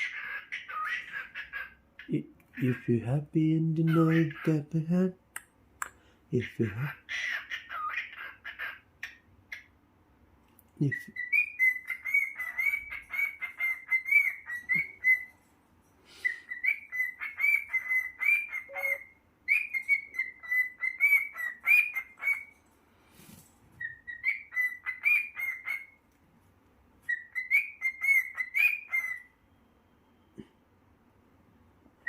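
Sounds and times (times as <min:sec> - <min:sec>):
cockatiel whistling: 0:10.9 - 0:15.4, 0:16.2 - 0:22.5, 0:23.8 - 0:25.9, 0:27.1 - 0:29.3.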